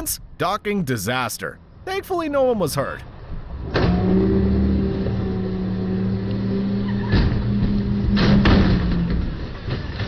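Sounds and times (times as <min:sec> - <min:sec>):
engine running with low hum: 0:03.1 - 0:10.0.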